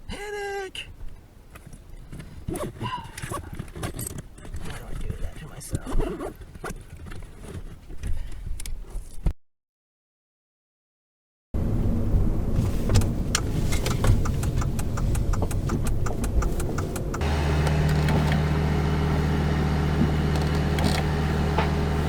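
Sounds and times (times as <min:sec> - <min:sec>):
car engine idling: 0:11.6 - 0:22.0.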